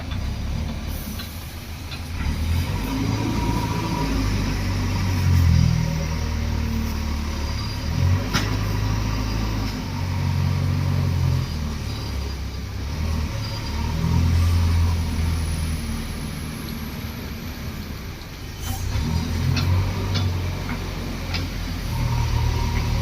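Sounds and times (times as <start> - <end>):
diesel engines surging: 0.0 - 23.0.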